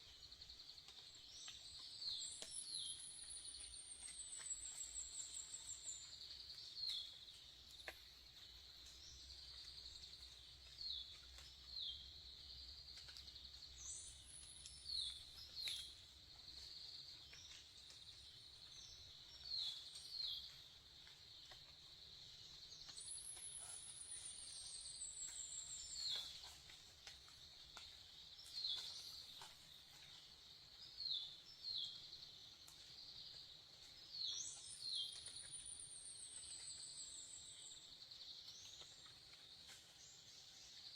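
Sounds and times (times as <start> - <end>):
bird chirps: 1.1 - 16.0, 22.4 - 27.2, 34.0 - 39.1.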